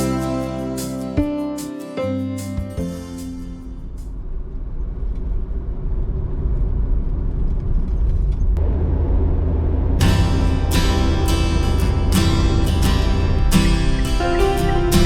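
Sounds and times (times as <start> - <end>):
background music: 0.0 - 4.1, 10.0 - 15.0
car road and engine rumble: 3.2 - 15.0.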